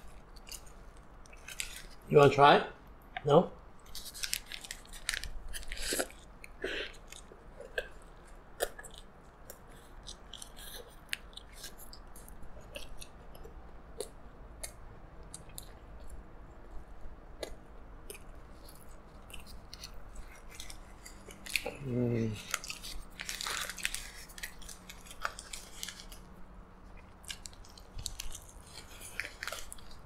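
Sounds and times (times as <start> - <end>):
chewing with short clicks: 5.9 - 16.2.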